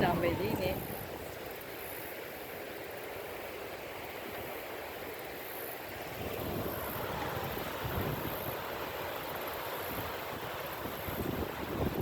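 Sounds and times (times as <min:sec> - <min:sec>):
wind buffeting microphone: 0:00.0 - 0:01.6, 0:06.1 - 0:12.0.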